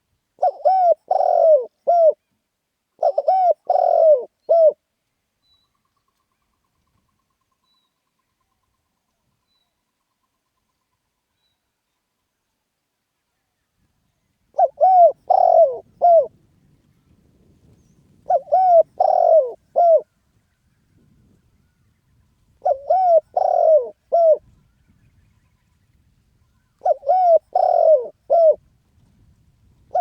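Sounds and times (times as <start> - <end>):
dove cooing: 0.4 - 2.2, 3.0 - 4.8, 14.6 - 16.4, 18.2 - 20.0, 22.6 - 24.5, 26.8 - 28.6, 29.8 - 30.0.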